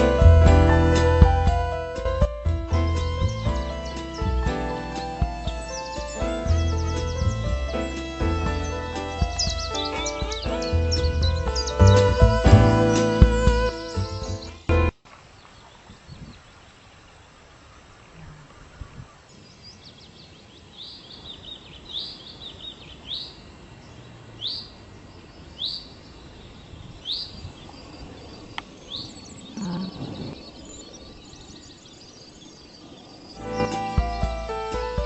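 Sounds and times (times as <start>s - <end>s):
outdoor background noise: 0.0s - 35.0s
bird calling: 3.0s - 14.6s, 26.6s - 34.8s.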